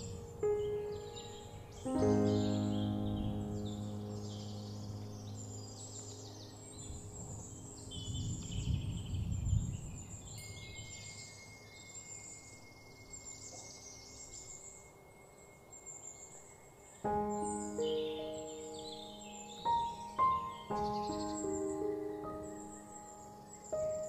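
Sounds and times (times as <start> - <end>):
music: 0.0 - 9.4, 17.0 - 24.0
birds chirping and singing: 0.0 - 24.0.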